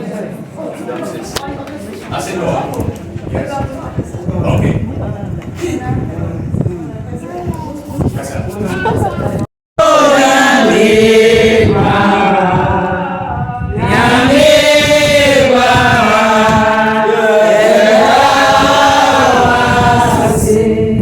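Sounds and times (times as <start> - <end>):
group of voices singing: 9.8 - 21.0.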